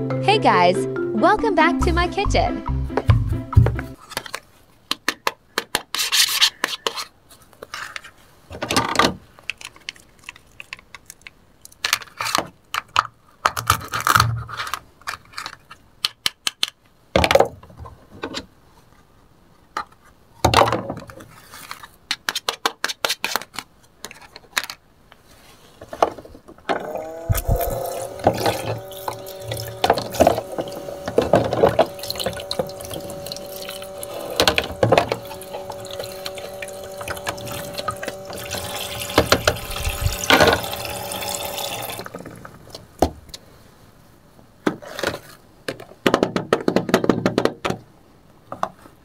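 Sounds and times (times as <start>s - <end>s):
plastic toys rubbing and scraping: 4.0s - 4.7s, 5.7s - 8.6s, 13.8s - 15.8s, 21.1s - 42.7s.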